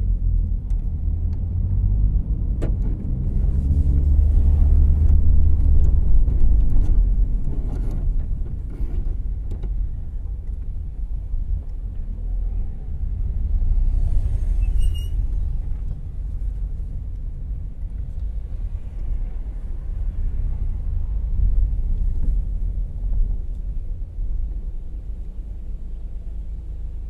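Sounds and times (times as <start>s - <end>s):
car engine and road rumble: 0.0s - 27.0s
brief high squeak: 13.9s - 15.8s.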